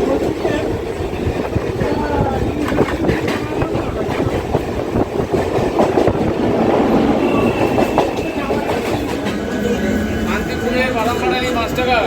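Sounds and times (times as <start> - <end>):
train rumble and rattle: 0.0 - 12.0
train wheels knocking on rails: 1.3 - 6.4.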